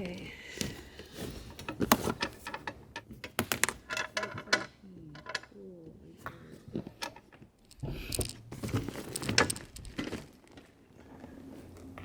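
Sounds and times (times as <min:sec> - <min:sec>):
camping gear rattling and knocking: 0:00.0 - 0:04.6, 0:07.0 - 0:10.6.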